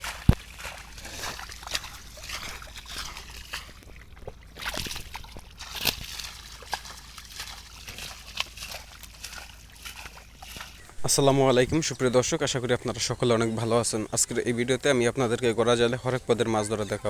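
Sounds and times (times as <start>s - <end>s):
small water splashes: 0.0s - 11.0s
shallow water sloshing and trickling: 0.0s - 17.0s.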